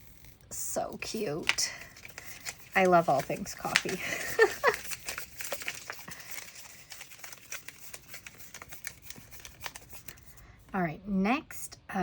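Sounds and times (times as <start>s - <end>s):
faint packaging rustling: 0.9s - 10.7s.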